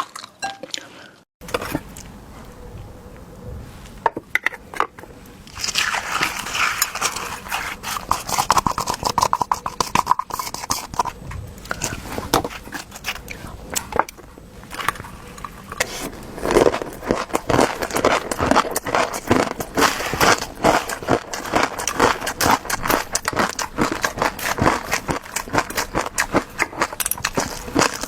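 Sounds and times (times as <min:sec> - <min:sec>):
noodles being slurped: 0:05.5 - 0:13.7, 0:14.8 - 0:28.0
chewing and biting: 0:05.5 - 0:28.0.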